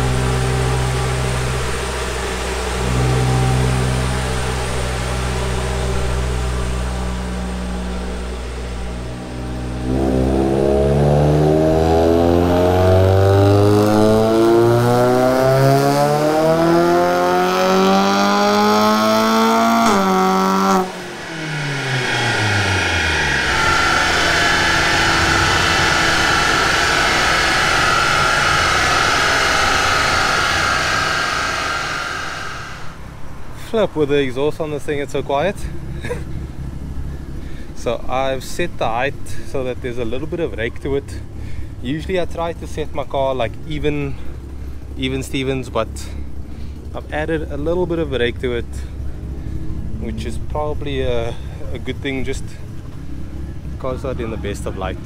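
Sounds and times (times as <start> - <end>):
car engine revving: 0.0 - 37.7
rushing noise: 18.6 - 34.1.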